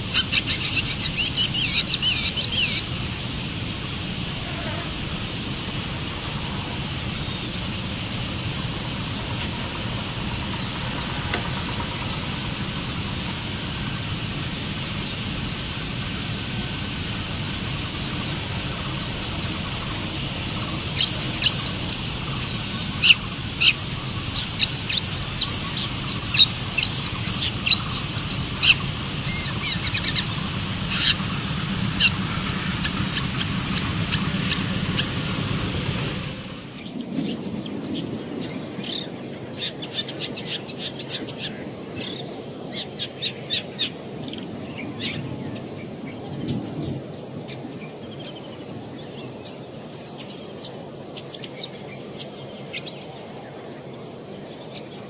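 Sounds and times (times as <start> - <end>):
steady high-pitched tone: 0.0 - 37.2
bird chirping: 0.0 - 39.1.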